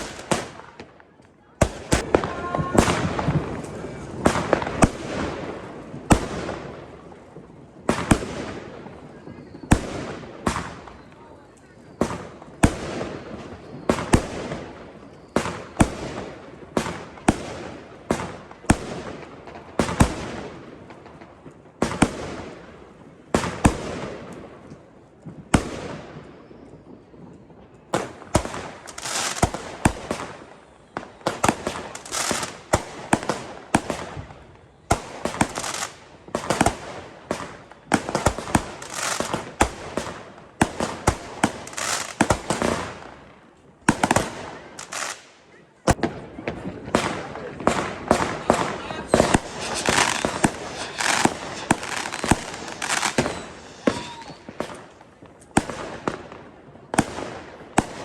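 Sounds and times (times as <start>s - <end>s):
fireworks crackling: 0.0s - 58.0s
fireworks sharp bangs: 0.0s - 58.0s.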